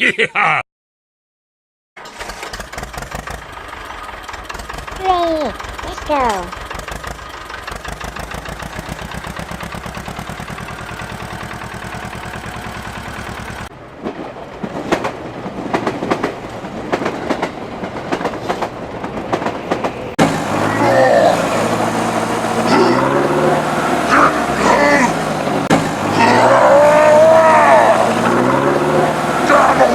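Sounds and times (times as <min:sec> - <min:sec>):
small tractor engine chugging: 0:02.0 - 0:13.7.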